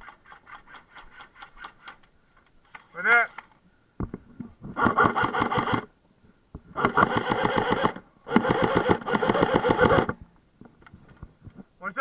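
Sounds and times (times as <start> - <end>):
electric gun firing rapid clicks: 6.8 - 10.1.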